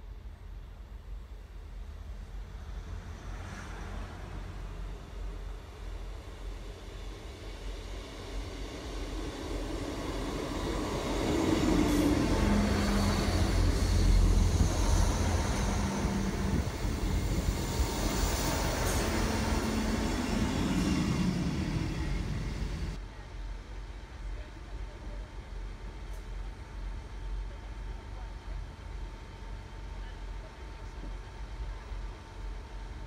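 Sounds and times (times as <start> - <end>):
diesel train passing: 0.6 - 23.0.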